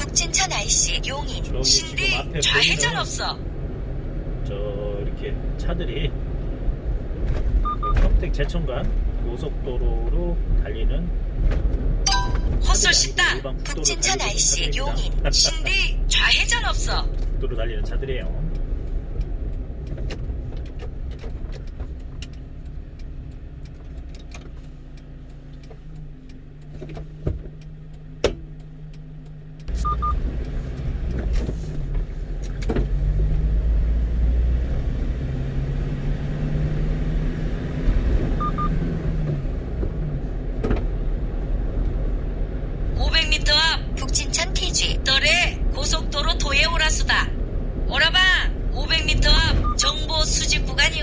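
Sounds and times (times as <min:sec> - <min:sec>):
road noise inside cab: 0:00.0 - 0:51.0
truck engine: 0:00.0 - 0:51.0
short double beeps: 0:12.1 - 0:12.7, 0:29.7 - 0:30.2, 0:38.4 - 0:38.8, 0:49.3 - 0:50.1.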